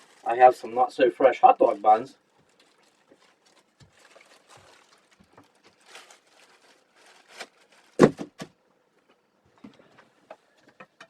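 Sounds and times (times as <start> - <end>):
plastic bag rustling: 0.0 - 1.0, 1.6 - 8.6.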